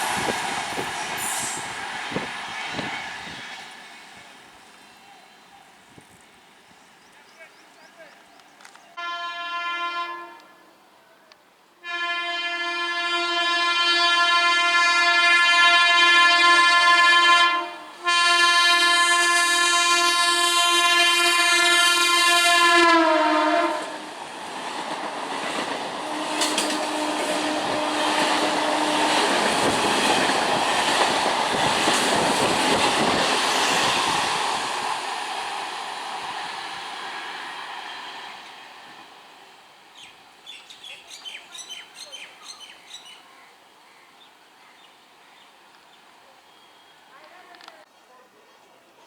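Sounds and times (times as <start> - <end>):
train rushing past: 0.0 - 5.3, 13.4 - 40.4
train horn: 9.0 - 10.7, 11.8 - 24.1, 26.0 - 30.2.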